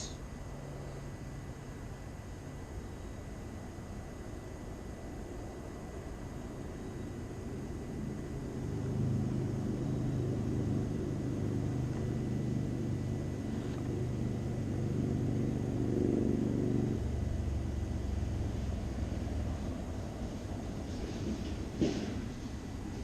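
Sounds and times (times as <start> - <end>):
vehicle engine rumbling: 5.2 - 23.0.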